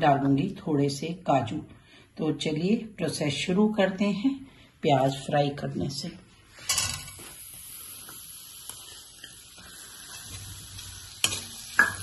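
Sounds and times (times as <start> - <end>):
onions sizzling in oil: 7.0 - 12.0
knock on a pan: 11.8 - 12.0.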